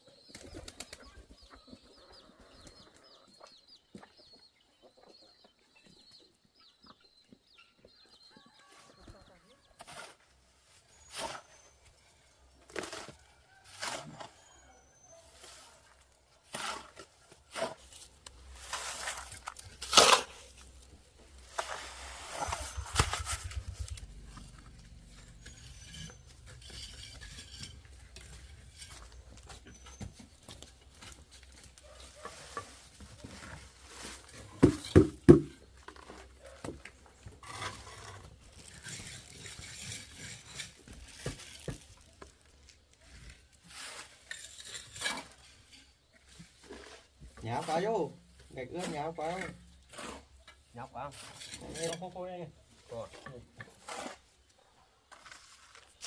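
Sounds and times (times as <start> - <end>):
scraping: 16.5 - 48.0, 48.6 - 52.3
hard objects clattering and knocking: 34.4 - 42.5.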